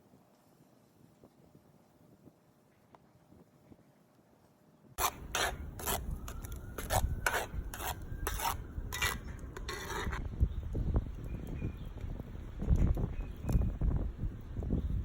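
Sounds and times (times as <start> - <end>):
rasping scrapes: 5.0 - 10.2.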